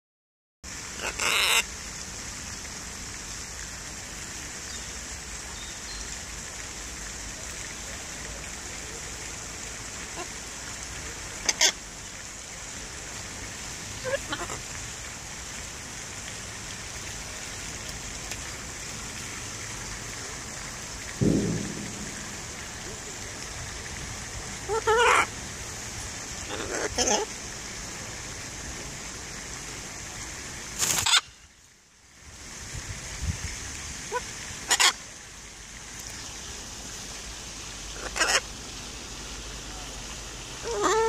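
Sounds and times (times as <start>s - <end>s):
outdoor background hiss: 0.7s - 41.0s
low loud sound: 21.1s - 24.8s.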